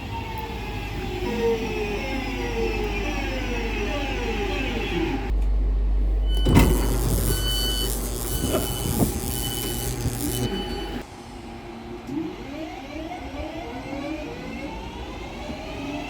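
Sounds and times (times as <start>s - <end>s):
train motor whine: 0.0s - 5.4s, 6.1s - 11.1s
door warning beeps: 6.3s - 11.0s.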